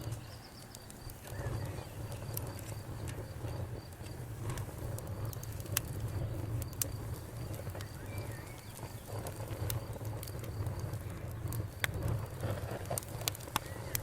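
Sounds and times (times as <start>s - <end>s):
faint bird chirp: 0.0s - 2.8s, 7.5s - 9.2s
campfire crackling and popping: 0.0s - 14.0s.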